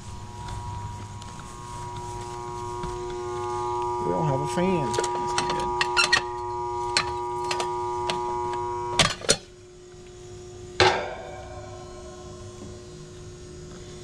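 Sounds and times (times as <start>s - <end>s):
electrical hum: 0.0s - 14.0s
metallic clank: 10.8s - 11.9s.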